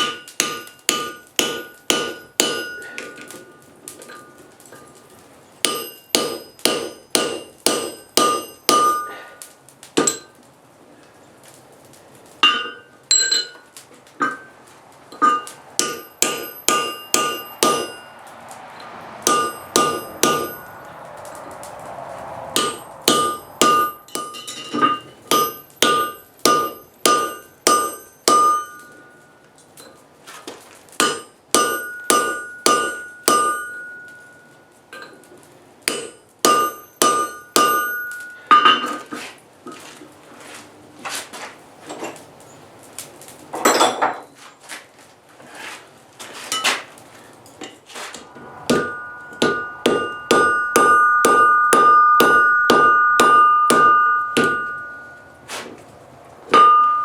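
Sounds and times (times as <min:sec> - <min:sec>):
hammer striking steel on anvil: 0:00.0 - 0:05.0, 0:05.6 - 0:10.3, 0:12.4 - 0:13.6, 0:15.1 - 0:18.2, 0:19.2 - 0:20.9, 0:22.5 - 0:29.3, 0:31.0 - 0:35.3, 0:35.9 - 0:39.1, 0:47.6 - 0:55.7, 0:56.5 - 0:57.0.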